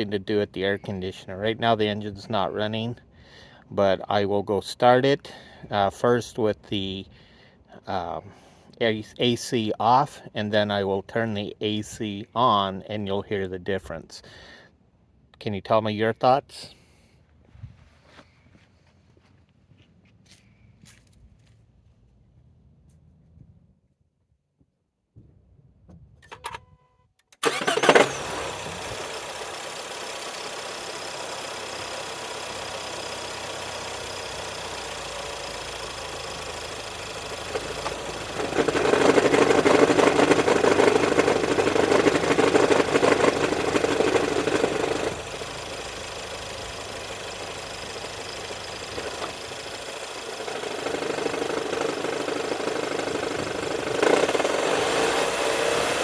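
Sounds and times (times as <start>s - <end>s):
car engine cranking and starting: 26.1s - 56.0s
car engine idling: 27.4s - 56.0s
loud droning noise: 37.5s - 56.0s.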